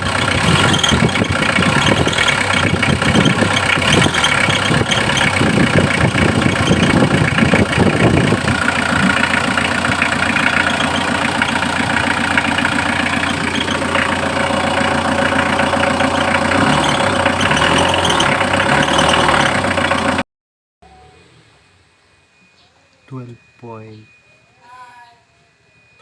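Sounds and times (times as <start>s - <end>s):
van engine idling: 0.0s - 20.2s.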